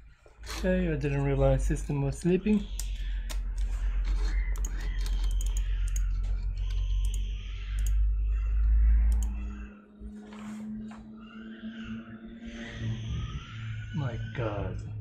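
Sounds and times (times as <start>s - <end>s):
computer keys clicking: 2.1s - 9.7s
strong low hum: 5.6s - 15.0s.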